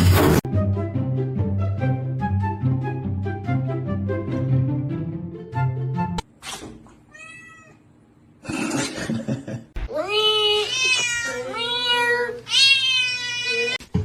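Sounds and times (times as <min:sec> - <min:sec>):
background music: 0:00.1 - 0:06.2
cat meowing: 0:07.1 - 0:07.8, 0:10.0 - 0:13.8.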